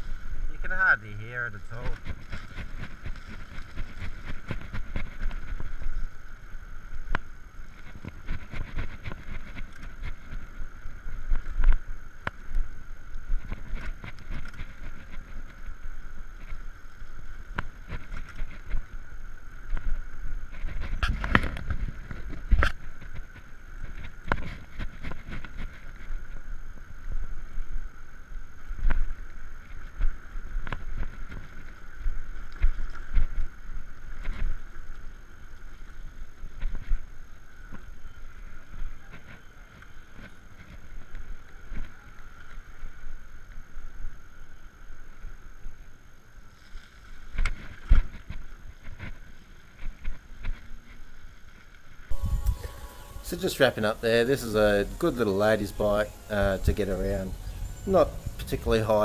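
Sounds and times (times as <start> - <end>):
bicycle rattling and knocking: 1.6 - 6.2
faint electric motor whine: 52.0 - 59.0
wind buffeting microphone: 52.1 - 59.0.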